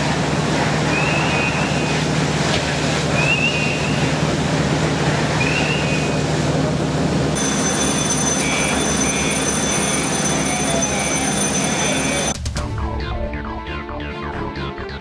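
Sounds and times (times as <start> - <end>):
loud mechanical rumble: 0.0 - 12.5.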